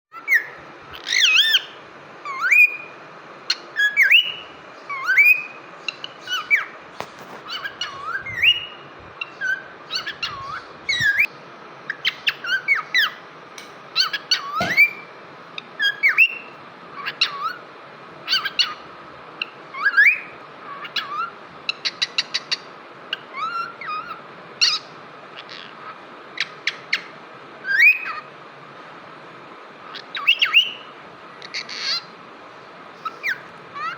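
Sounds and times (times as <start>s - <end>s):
cockatiel whistling: 3.5s - 6.7s, 14.0s - 15.1s, 15.8s - 17.6s.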